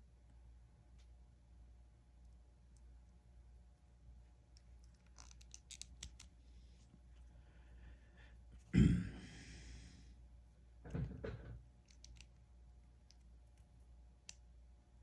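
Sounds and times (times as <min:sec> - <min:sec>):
soft knock: 0:10.9 - 0:11.6.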